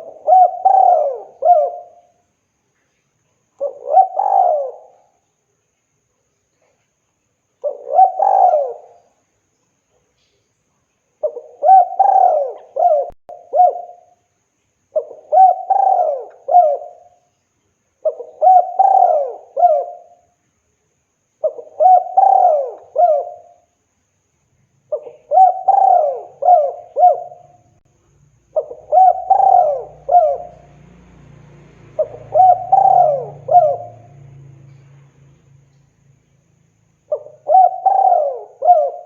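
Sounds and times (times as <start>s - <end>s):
dove cooing: 0.0s - 2.2s, 3.6s - 5.2s, 7.6s - 9.1s, 11.2s - 14.2s, 15.0s - 17.2s, 18.0s - 20.2s, 21.4s - 23.7s, 24.9s - 27.6s, 28.5s - 30.9s, 31.9s - 34.9s, 37.0s - 39.0s.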